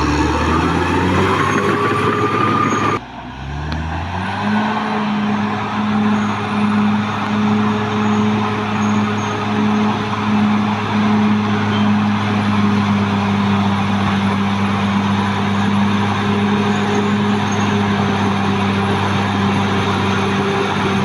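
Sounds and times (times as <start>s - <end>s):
high rising whine: 0.0s - 3.0s
bulldozer diesel engine: 0.0s - 3.5s, 4.1s - 21.0s.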